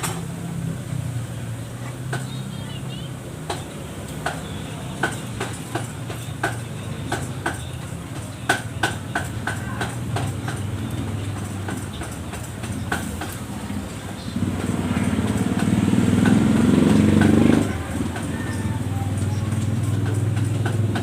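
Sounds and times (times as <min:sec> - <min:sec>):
sharp knocks or clicks: 0:03.4 - 0:13.4, 0:19.5 - 0:21.0.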